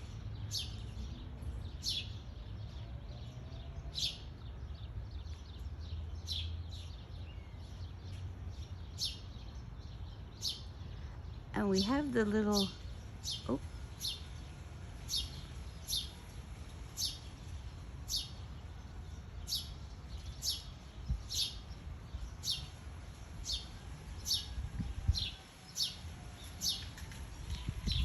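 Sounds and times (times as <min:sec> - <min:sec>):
small songbird chirping: 0:00.0 - 0:28.0.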